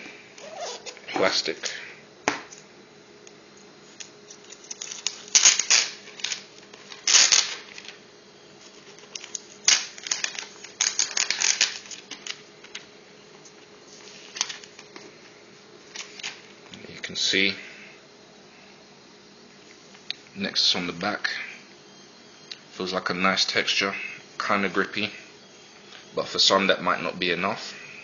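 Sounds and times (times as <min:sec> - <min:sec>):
plastic film crinkling: 0:04.0 - 0:08.0, 0:08.6 - 0:15.0.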